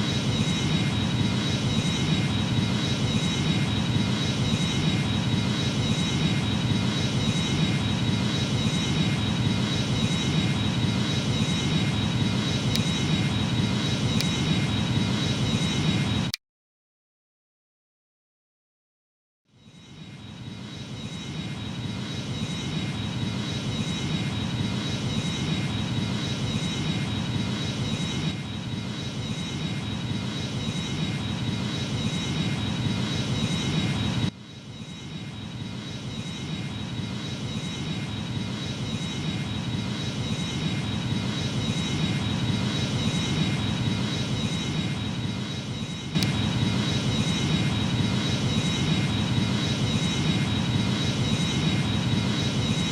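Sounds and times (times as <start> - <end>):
jet engines rushing with whine: 0.0 - 16.4, 19.5 - 52.9.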